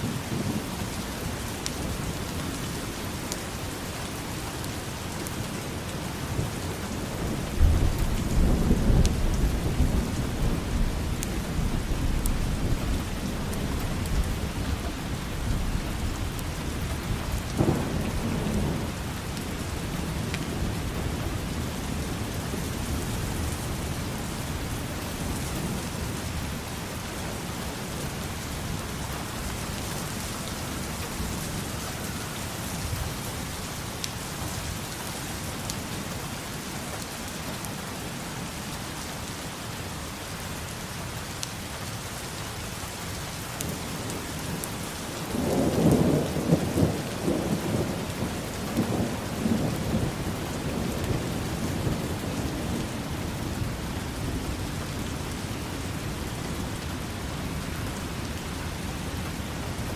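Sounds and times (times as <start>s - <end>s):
steady rain falling: 0.0s - 59.9s
thunder rumbling: 6.3s - 26.2s, 43.6s - 58.1s.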